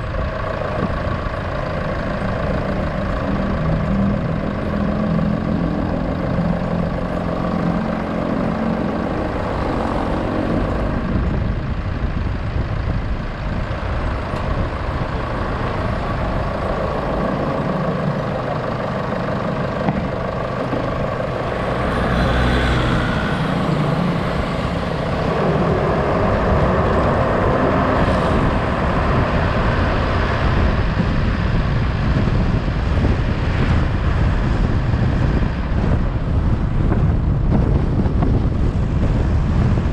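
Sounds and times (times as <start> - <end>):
road and traffic noise: 0.0 - 39.9
vehicle engine rumble: 0.0 - 39.9.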